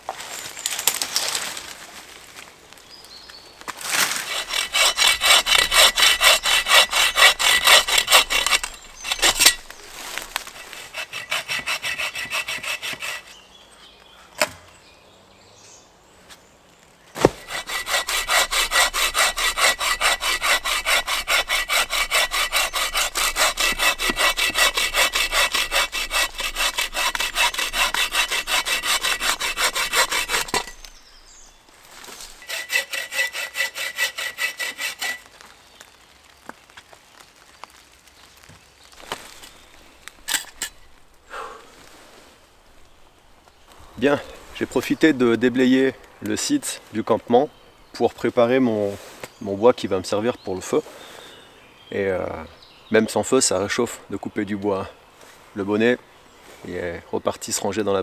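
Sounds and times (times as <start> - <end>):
hand saw cutting branches: 3.8 - 13.4, 17.2 - 31.1, 31.9 - 35.4, 39.0 - 41.6.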